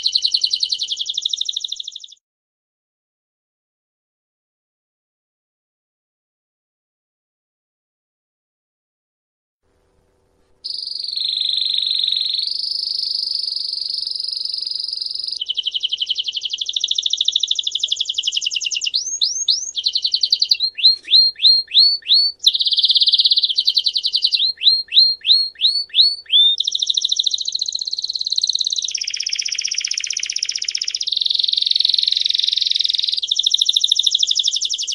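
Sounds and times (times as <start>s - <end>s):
songbird singing trills: 0.0s - 2.2s, 10.6s - 34.9s.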